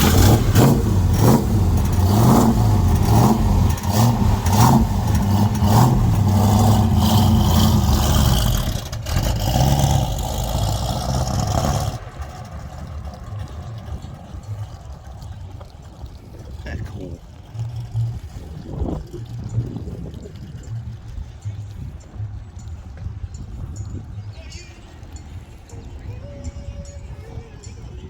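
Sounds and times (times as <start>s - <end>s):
car engine revving: 0.0s - 22.4s.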